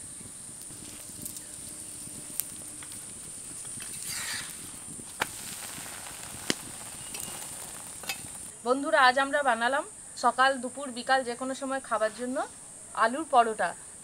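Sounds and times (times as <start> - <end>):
flatbread sizzling in oil: 0.0 - 8.7.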